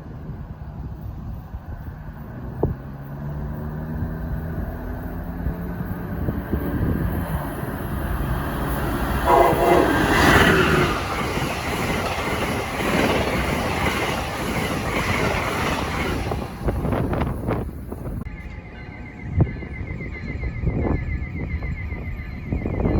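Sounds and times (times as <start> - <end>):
train wheel and rail noise: 0.0 - 22.9
train horn: 8.2 - 11.2.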